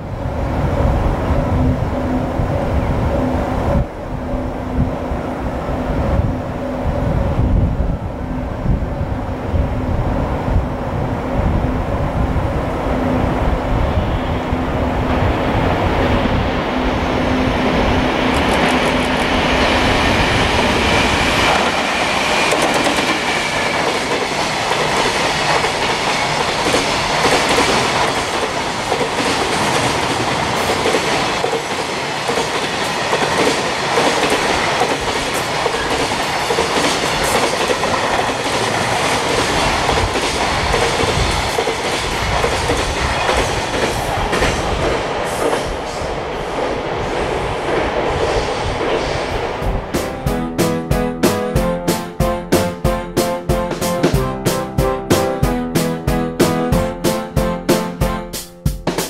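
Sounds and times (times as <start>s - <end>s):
electric locomotive rumble and hum: 0.0s - 32.2s
wheels clacking over rail joints: 18.2s - 45.7s.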